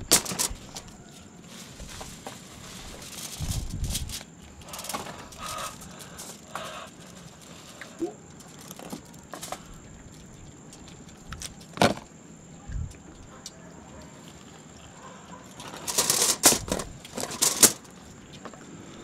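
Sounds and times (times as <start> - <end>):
objects being handled: 0.0 - 9.8, 15.5 - 18.5.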